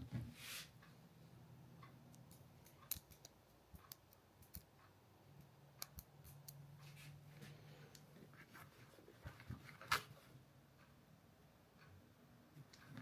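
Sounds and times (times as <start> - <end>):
small clicks and ticks: 1.8 - 6.9.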